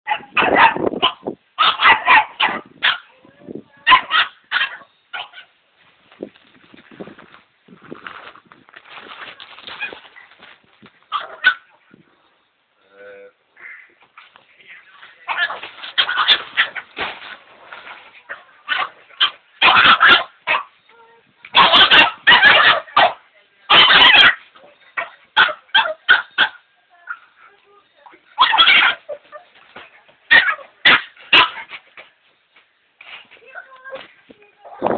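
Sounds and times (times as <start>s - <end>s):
dog barking: 0.1s - 3.1s, 3.9s - 5.4s, 18.3s - 20.7s, 21.5s - 24.4s, 25.0s - 26.6s, 28.4s - 29.1s, 30.3s - 31.7s.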